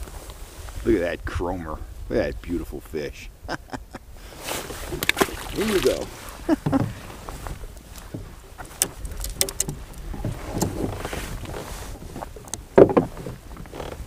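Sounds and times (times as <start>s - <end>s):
water splashing and dripping: 4.8s - 7.0s
net knocking against kayak hull: 4.9s - 14.0s.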